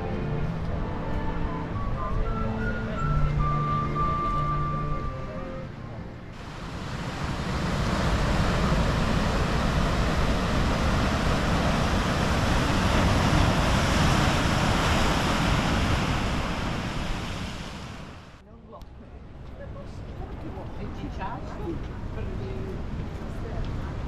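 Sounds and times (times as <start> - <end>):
sea surf washing on shore: 6.4 - 18.4.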